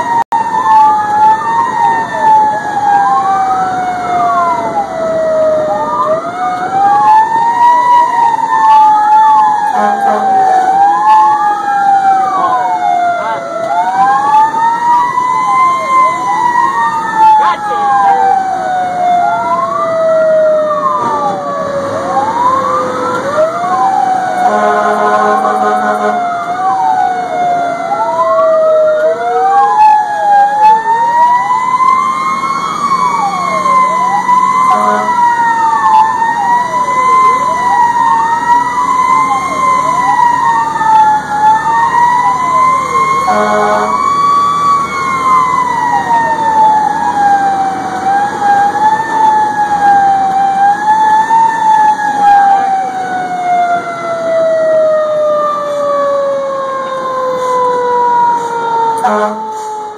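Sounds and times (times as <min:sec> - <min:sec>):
fire engine sirens: 0:00.0 - 0:59.9
steady horn blasts: 0:09.7 - 0:10.8, 0:24.4 - 0:26.4, 0:34.6 - 0:35.4, 0:43.0 - 0:44.1, 0:58.4 - 0:59.8.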